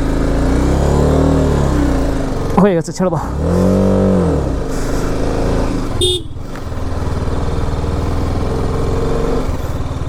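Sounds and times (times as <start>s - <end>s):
motorcycle engine under throttle: 3.5s - 10.0s
vehicle horn toot: 6.0s - 6.6s.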